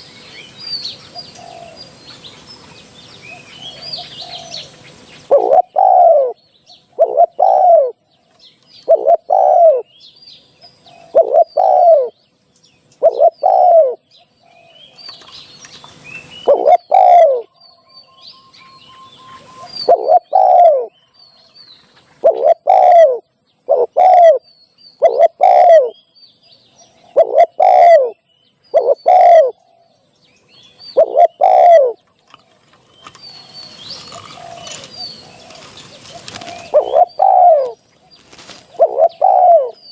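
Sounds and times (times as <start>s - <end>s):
small birds chirping: 0.0s - 39.9s
dove cooing: 0.9s - 2.0s, 3.2s - 8.0s, 8.8s - 9.9s, 10.8s - 12.2s, 13.0s - 14.8s, 16.3s - 17.6s, 18.7s - 21.0s, 22.0s - 26.0s, 27.0s - 30.0s, 30.9s - 32.0s, 33.0s - 39.9s.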